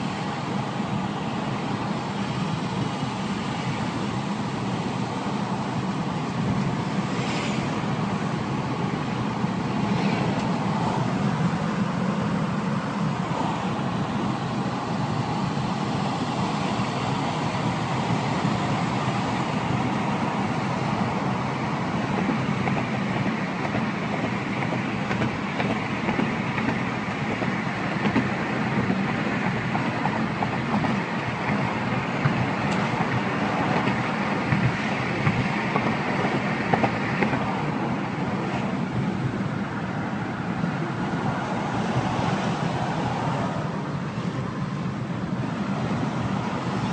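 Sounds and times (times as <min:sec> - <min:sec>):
vehicle road noise: 0:00.0 - 0:46.9.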